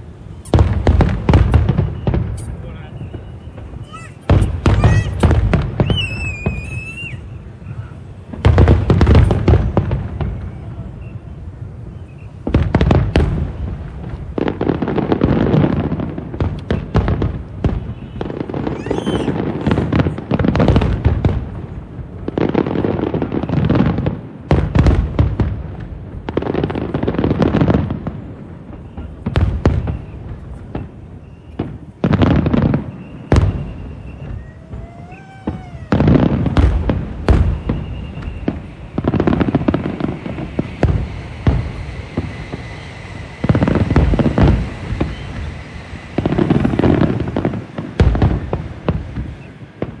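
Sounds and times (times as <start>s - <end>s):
fireworks booming and crackling: 0.0s - 50.0s
wavering whistle: 5.8s - 7.4s, 32.8s - 36.1s.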